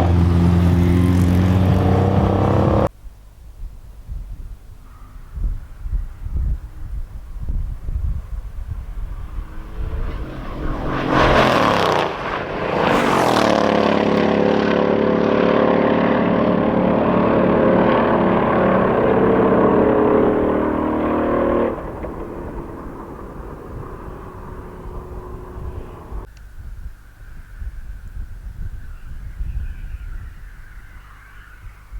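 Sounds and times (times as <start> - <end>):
car engine revving: 0.0 - 2.9, 8.2 - 26.3.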